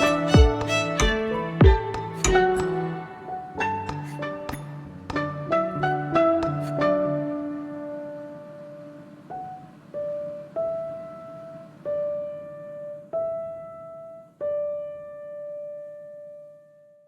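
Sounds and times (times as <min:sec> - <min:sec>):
slow solo piano melody: 0:06.2 - 0:17.0.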